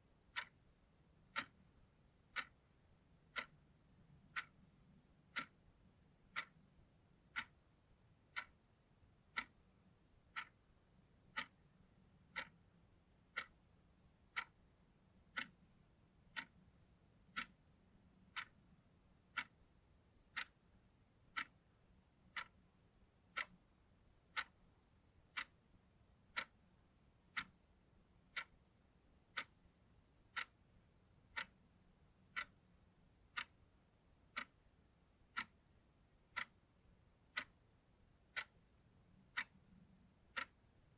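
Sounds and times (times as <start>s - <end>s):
clock ticking: 0.0s - 40.9s.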